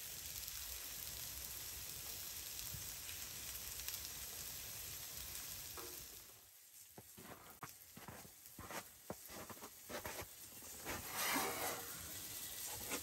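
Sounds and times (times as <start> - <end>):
sausage and onions sizzling: 0.0 - 13.0.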